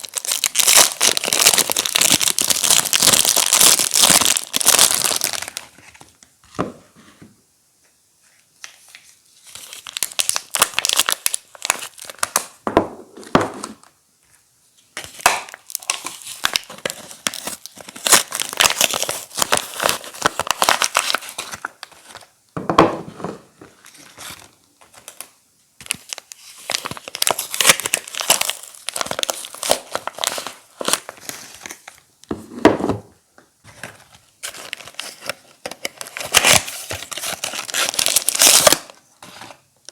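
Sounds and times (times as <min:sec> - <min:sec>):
wrappers crinkling and tearing: 0:00.0 - 0:05.8, 0:09.3 - 0:12.6, 0:15.0 - 0:22.3, 0:23.9 - 0:32.0, 0:34.4 - 0:39.9.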